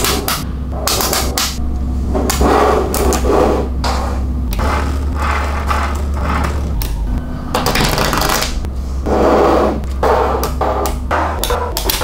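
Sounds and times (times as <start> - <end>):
background music with bass: 0.0 - 12.0
magnetic balls clicking: 9.9 - 12.0.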